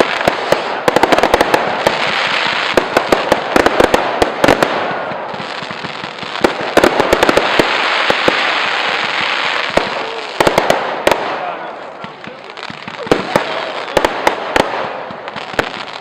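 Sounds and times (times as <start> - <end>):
fireworks cracking and banging: 0.0 - 16.0
fireworks hissing: 0.0 - 16.0.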